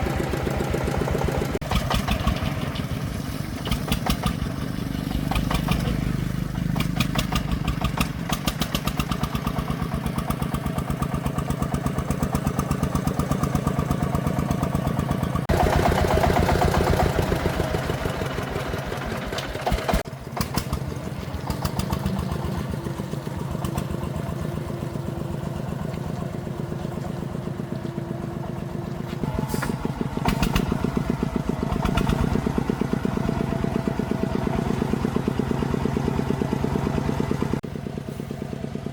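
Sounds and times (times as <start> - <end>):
diesel engine chugging: 0.0 - 38.9.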